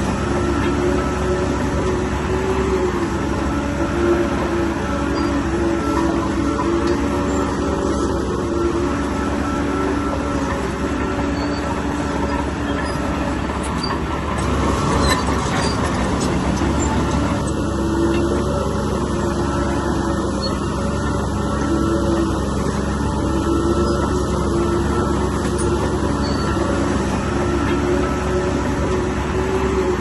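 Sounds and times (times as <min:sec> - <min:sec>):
bulldozer diesel engine under load: 0:00.0 - 0:30.0
steel tracks clanking and squealing: 0:00.0 - 0:30.0.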